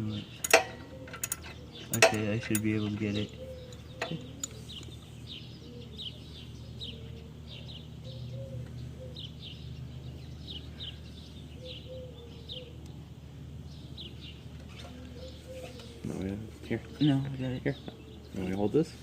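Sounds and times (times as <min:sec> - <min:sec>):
low steady hum: 0:00.0 - 0:19.0
small birds chirping: 0:00.0 - 0:19.0.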